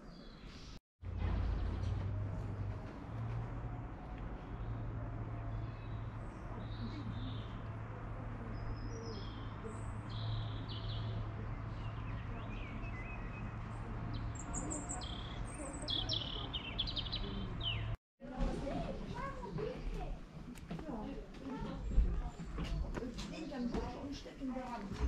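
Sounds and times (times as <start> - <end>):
small birds chirping: 4.4 - 18.0.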